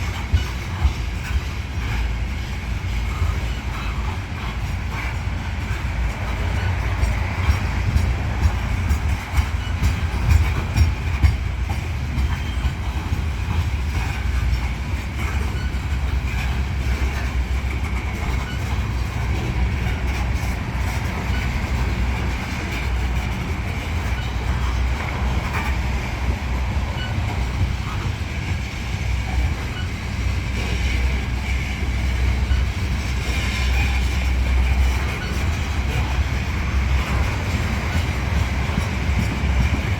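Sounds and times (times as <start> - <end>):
freight train rumbling past: 0.0 - 39.9
wheels clicking over track: 0.0 - 39.9.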